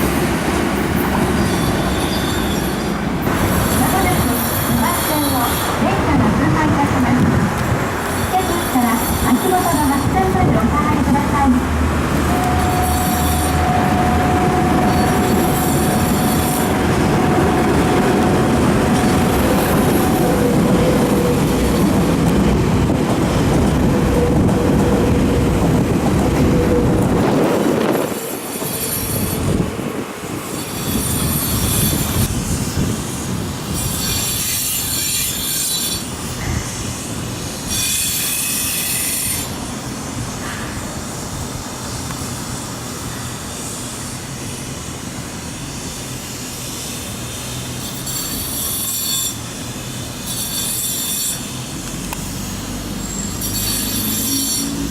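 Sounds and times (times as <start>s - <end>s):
train wheels squealing on rails: 0.0s - 5.9s, 7.9s - 10.4s, 12.1s - 22.3s, 23.3s - 29.6s, 30.3s - 54.9s
electric train running: 3.2s - 35.3s.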